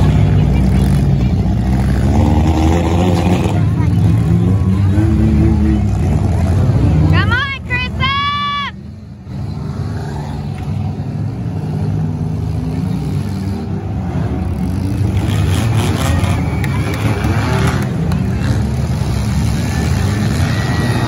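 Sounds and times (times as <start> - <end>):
car engines revving: 0.0 - 21.0
cars knocking and grinding: 10.1 - 21.0.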